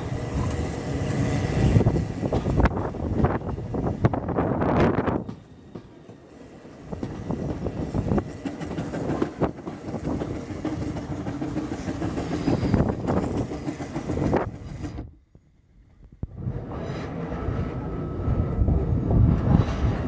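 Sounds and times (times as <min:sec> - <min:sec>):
train rumbling along track: 0:00.0 - 0:20.0.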